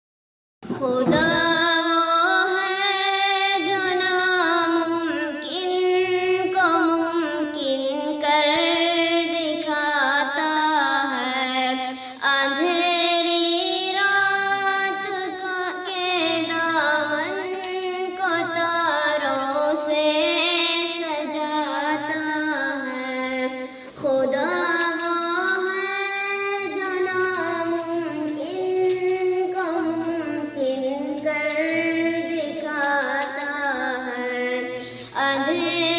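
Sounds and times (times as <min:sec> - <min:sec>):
singer breathing: 0:23.6 - 0:24.0, 0:34.7 - 0:35.2.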